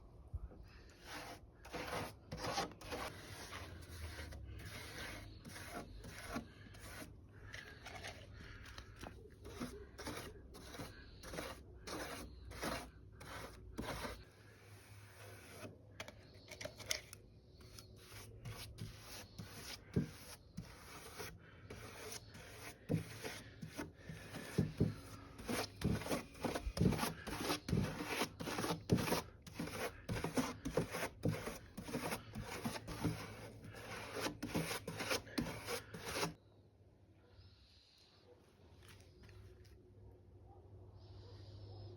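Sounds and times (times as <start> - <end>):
rasping wood by hand: 1.1 - 7.1, 9.5 - 14.2, 18.1 - 36.4.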